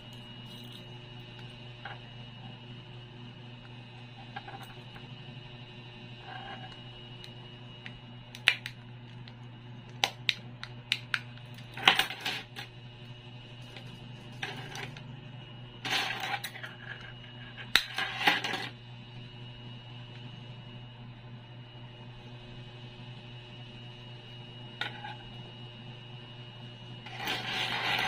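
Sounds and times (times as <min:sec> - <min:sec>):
keys clattering: 0:00.0 - 0:01.0.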